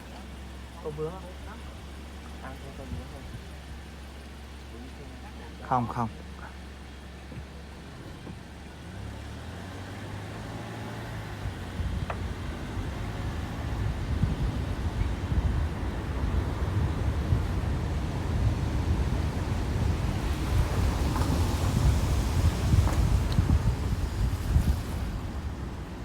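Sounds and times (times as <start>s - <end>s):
wind noise on microphone: 11.4s - 26.0s.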